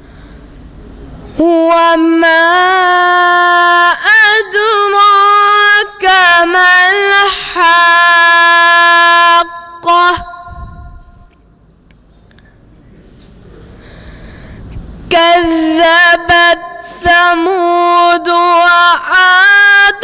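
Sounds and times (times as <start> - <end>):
boy chanting melodic recitation: 1.3 - 11.2, 15.1 - 20.0.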